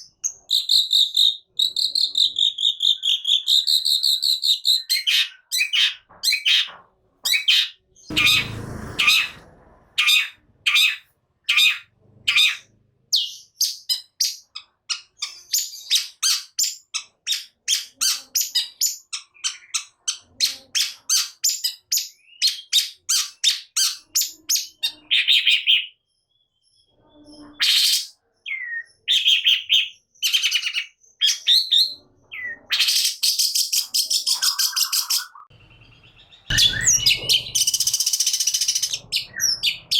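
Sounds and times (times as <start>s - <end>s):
bird chattering: 0.1s - 21.4s, 32.4s - 39.9s
harsh rasping bird call: 7.3s - 12.7s, 36.0s - 39.9s.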